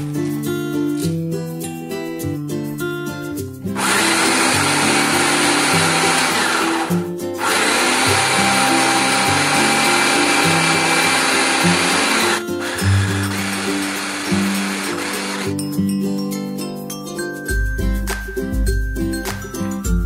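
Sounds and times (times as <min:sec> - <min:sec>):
guitar background music: 0:00.0 - 0:20.0
electric blender grinding: 0:03.8 - 0:15.5.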